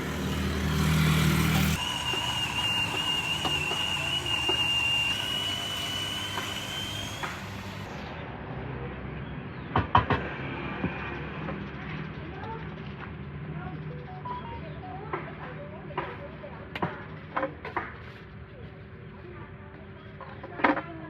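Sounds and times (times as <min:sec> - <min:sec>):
vehicle passing close: 0:00.0 - 0:03.9
street traffic: 0:00.0 - 0:16.2
high whistling tone: 0:01.6 - 0:07.8.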